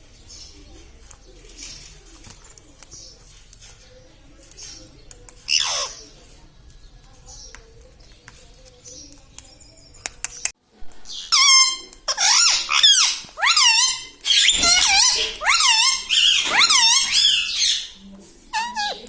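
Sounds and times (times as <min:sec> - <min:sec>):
faint clicks: 0:01.0 - 0:05.5, 0:06.6 - 0:10.6
parakeet calling: 0:05.4 - 0:06.1, 0:11.1 - 0:19.0.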